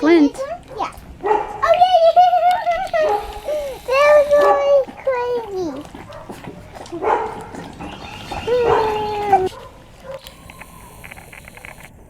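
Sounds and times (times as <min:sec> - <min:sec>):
puppy whining: 0:02.3 - 0:11.4
faint high hiss: 0:03.1 - 0:04.4
puppy yelp: 0:06.0 - 0:11.0.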